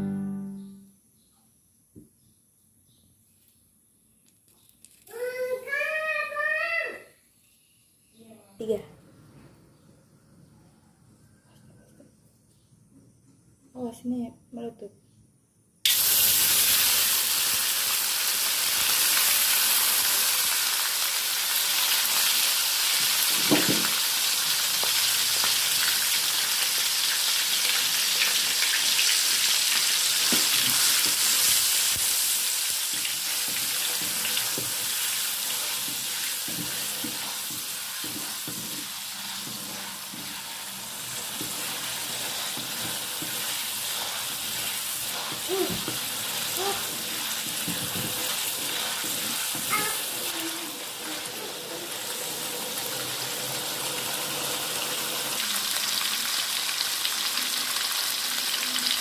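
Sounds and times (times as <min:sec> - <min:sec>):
food sizzling in hot oil: 0:15.8 - 0:59.0
soft stirring knocks: 0:35.6 - 0:50.0.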